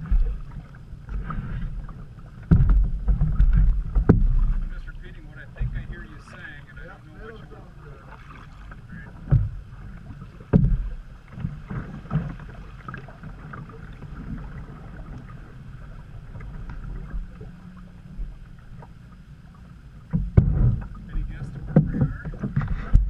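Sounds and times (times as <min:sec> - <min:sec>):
canoe knocks: 0:00.0 - 0:06.5, 0:08.1 - 0:15.4, 0:20.1 - 0:23.0
paddle swishing water: 0:00.0 - 0:23.0
steady low rumble: 0:00.0 - 0:23.0.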